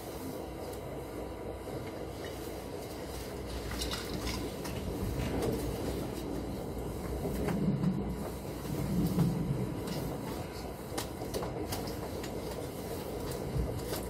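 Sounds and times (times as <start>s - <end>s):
train wheels rumbling: 0.0s - 14.0s.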